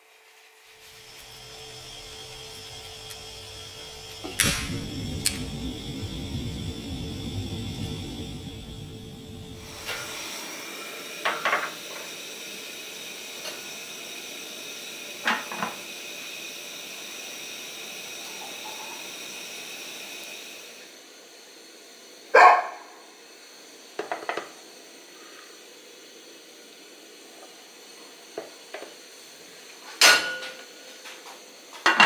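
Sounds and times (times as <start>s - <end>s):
gas burner hissing: 0.4s - 32.0s
bark-like yelps: 22.4s - 22.9s.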